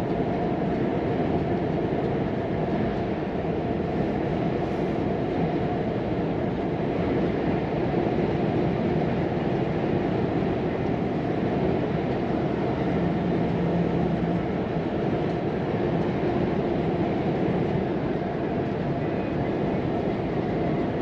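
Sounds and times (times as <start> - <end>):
road noise: 3.6 - 21.0
truck diesel engine rumble: 11.4 - 16.5.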